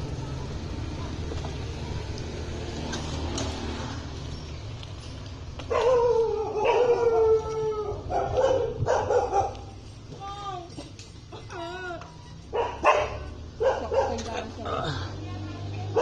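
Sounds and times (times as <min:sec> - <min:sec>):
dog howling: 0:05.7 - 0:08.7.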